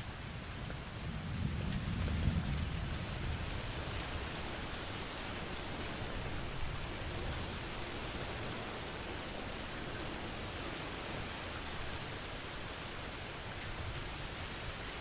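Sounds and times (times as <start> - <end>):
heavy rain hiss: 0.0 - 15.0
low thunder roll: 0.2 - 10.5.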